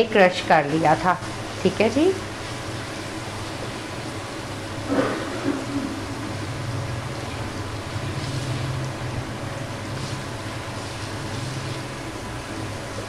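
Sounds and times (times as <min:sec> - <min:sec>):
food sizzling in hot oil: 0:00.3 - 0:04.9, 0:06.0 - 0:13.0
low hum: 0:04.8 - 0:09.8.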